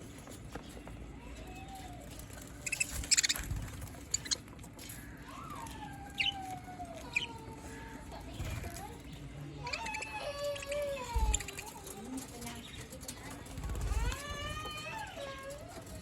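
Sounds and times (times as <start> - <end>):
budgerigars chirping: 2.6 - 3.4, 4.0 - 4.4.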